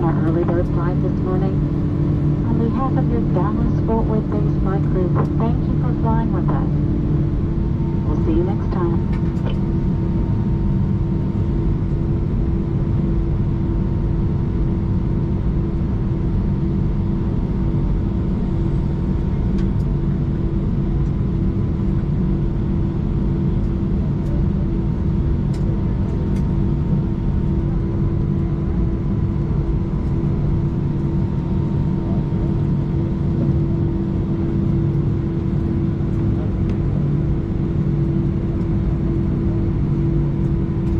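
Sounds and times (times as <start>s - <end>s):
air conditioning hum: 0.0s - 12.1s
aircraft engines idling: 0.0s - 40.9s.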